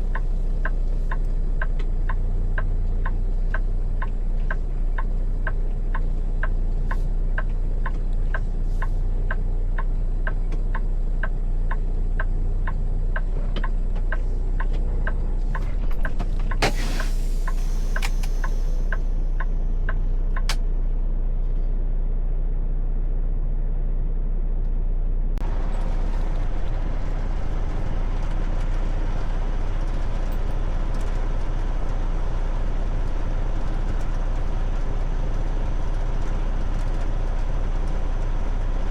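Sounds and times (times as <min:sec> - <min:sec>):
truck engine rumbling: 0:00.0 - 0:38.9
air brake hiss: 0:16.6 - 0:19.0.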